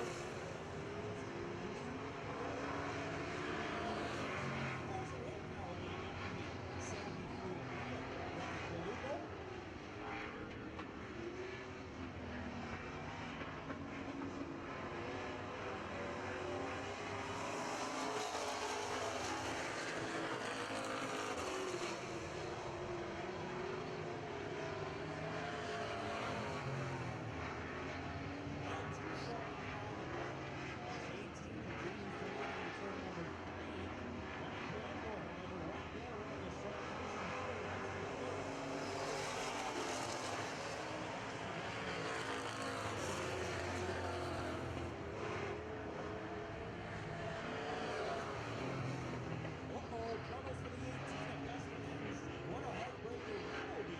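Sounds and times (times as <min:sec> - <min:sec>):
race truck engines droning: 0:00.0 - 0:53.9.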